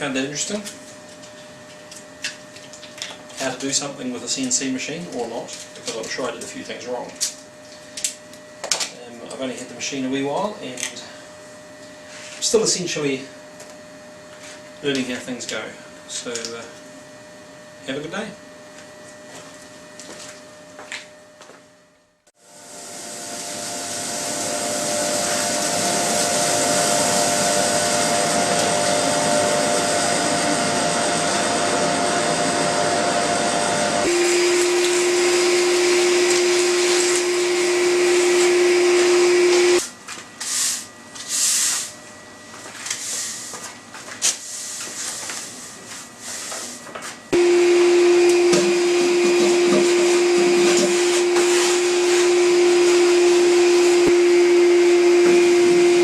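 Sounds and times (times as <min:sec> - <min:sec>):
vacuum cleaner running: 0:22.3 - 0:43.8, 0:44.4 - 0:56.0.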